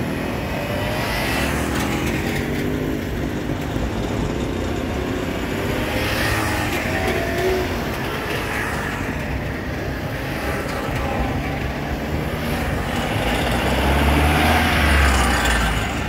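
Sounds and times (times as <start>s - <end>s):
old truck engine rumble: 0.0s - 16.0s
two-stroke cars driving past: 0.0s - 16.0s.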